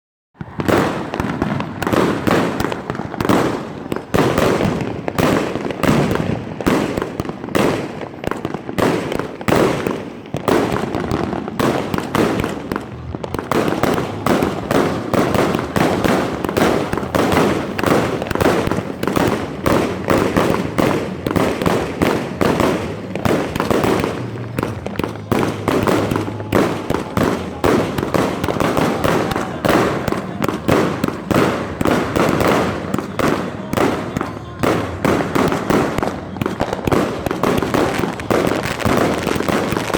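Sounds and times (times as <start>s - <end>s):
firework cake firing rapid bangs: 0.4s - 39.9s.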